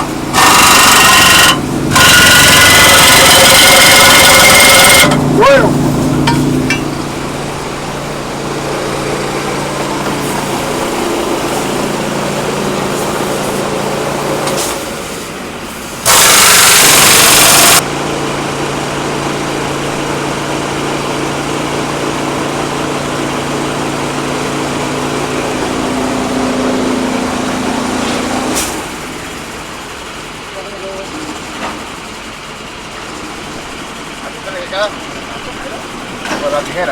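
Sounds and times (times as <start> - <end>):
engine running steadily: 0.0 - 36.9
loud hiss: 7.0 - 17.8.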